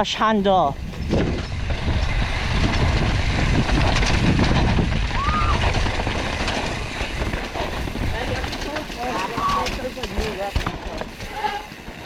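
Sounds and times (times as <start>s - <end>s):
bike rattling: 0.0s - 12.0s
tyres rumbling on dirt trail: 0.0s - 12.0s
wind on microphone: 0.5s - 9.9s.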